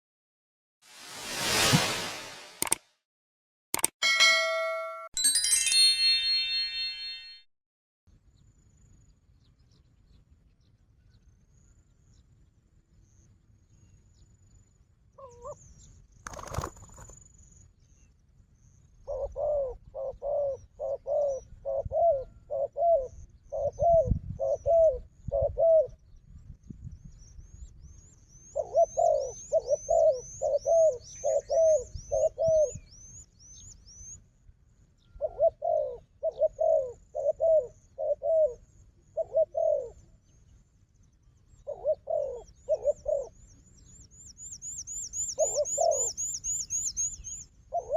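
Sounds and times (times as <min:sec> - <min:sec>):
dove cooing: 0:19.1 - 0:25.9, 0:35.2 - 0:38.6, 0:39.2 - 0:40.0, 0:41.7 - 0:43.3, 0:45.4 - 0:46.1
small bird chirping: 0:41.1 - 0:47.5.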